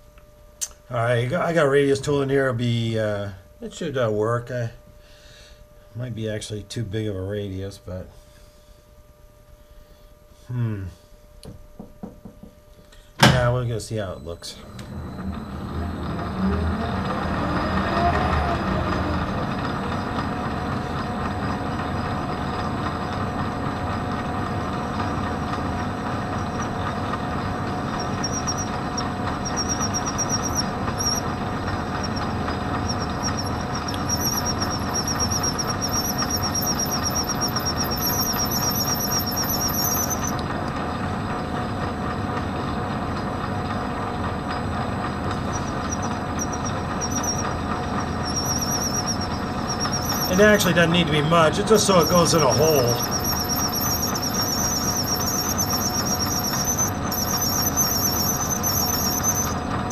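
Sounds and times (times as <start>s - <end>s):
high wavering cutting squeal: 14.2s - 40.4s, 45.2s - 59.9s
metal lathe running: 14.6s - 59.9s.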